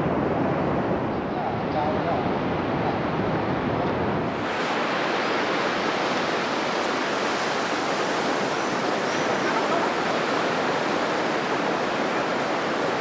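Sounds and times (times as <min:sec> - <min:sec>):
sea waves breaking on shore: 0:04.2 - 0:13.0.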